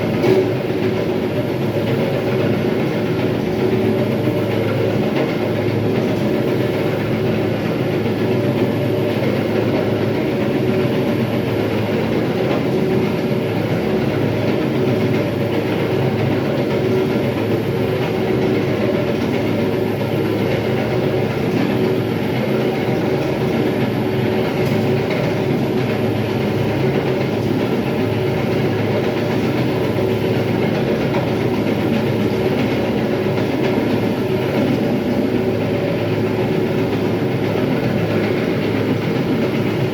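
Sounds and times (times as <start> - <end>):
floor grinding machine: 0.0 - 39.9.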